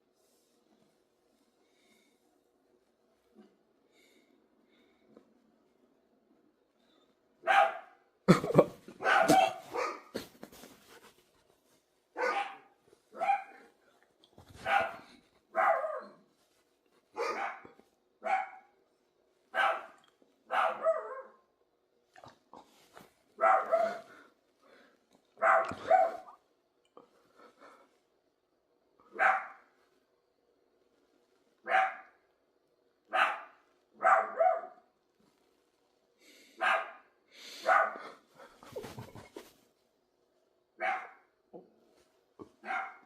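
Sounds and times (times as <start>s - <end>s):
dog barking: 7.4s - 8.1s, 9.0s - 10.3s, 12.2s - 13.7s, 14.5s - 16.2s, 17.2s - 18.8s, 19.5s - 21.4s, 23.4s - 24.2s, 25.4s - 26.4s, 29.1s - 29.7s, 31.6s - 32.2s, 33.1s - 34.9s, 36.6s - 38.2s, 40.8s - 41.3s, 42.6s - 43.0s.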